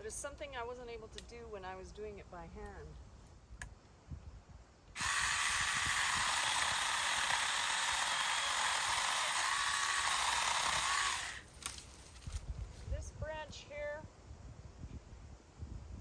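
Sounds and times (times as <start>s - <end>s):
electric chainsaw cutting branch: 5.0s - 11.8s.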